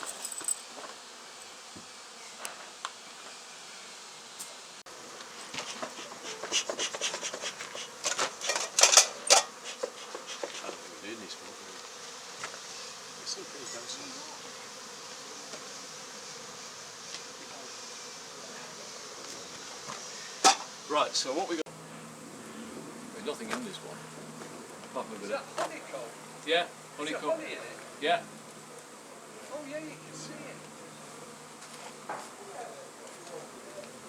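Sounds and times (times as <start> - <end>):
bees buzzing: 0.0 - 34.0
scraping and knocking on hive: 5.0 - 13.4, 14.0 - 18.0, 19.2 - 20.8, 31.6 - 32.4.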